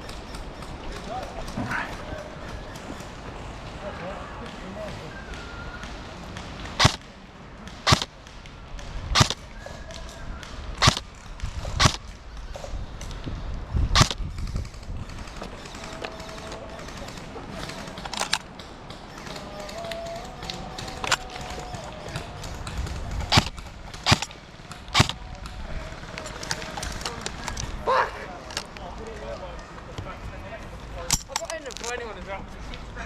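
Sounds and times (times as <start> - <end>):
airsoft gun shots: 6.8 - 7.1, 7.7 - 8.1, 9.2 - 9.4, 10.8 - 12.1, 14.0 - 14.2, 22.9 - 24.3, 24.9 - 25.2.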